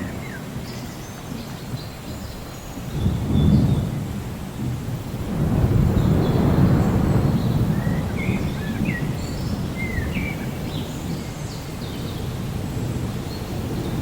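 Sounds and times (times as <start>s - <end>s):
rain: 0.0s - 14.0s
distant thunder: 2.9s - 14.0s
birds chirping: 5.9s - 14.0s.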